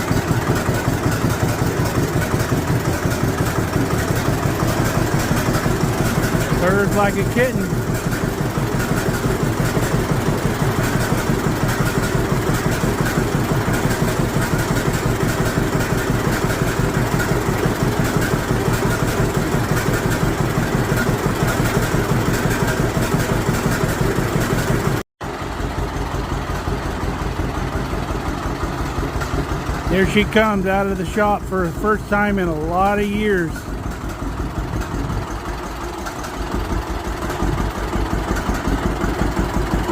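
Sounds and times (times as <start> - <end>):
tractor engine popping exhaust: 0.0 - 39.9.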